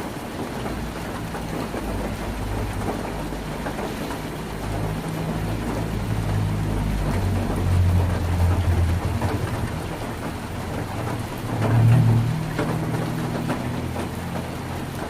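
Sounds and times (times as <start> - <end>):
heavy rain on tin roof: 0.0 - 15.0
low rumble: 4.7 - 14.7.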